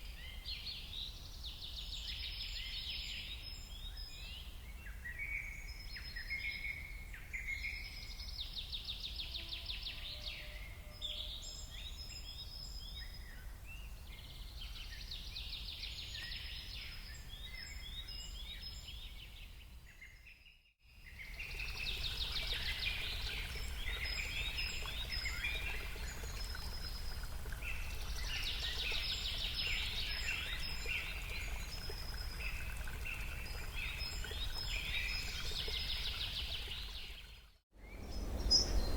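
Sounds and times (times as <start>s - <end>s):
songbirds trilling and chirping: 21.0s - 38.9s
steady low rumble: 37.9s - 38.9s.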